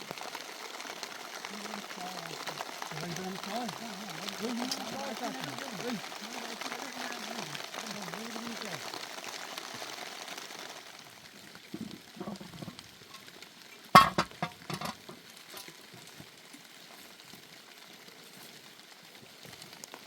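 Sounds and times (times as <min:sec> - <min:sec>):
food sizzling in a pan: 0:00.0 - 0:20.0
metal utensil striking pot: 0:14.0 - 0:15.0.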